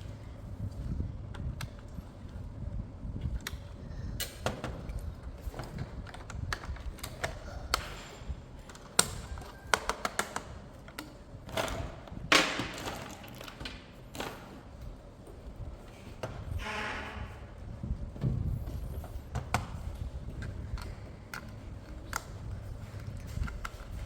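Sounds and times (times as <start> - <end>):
plastic parts clicking and tapping: 4.2 - 8.0, 8.6 - 14.4, 20.4 - 24.0.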